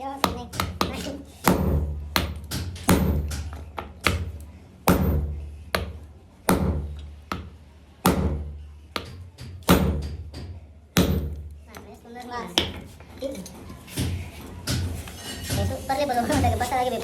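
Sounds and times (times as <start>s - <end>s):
hammer striking metal: 0.2s - 11.5s.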